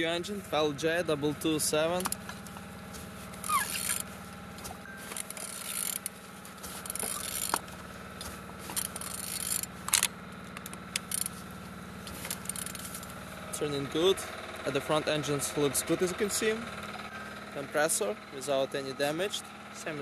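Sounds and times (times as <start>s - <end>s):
wrench turning engine scraping clicking: 1.5s - 14.6s.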